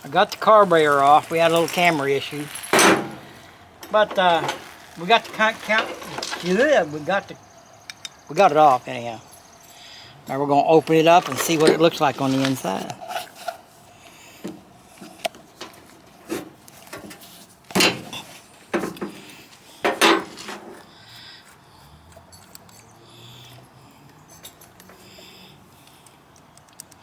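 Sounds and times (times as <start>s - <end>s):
carburetor parts clicking: 7.9s - 8.2s, 21.4s - 23.5s, 25.8s - 27.0s.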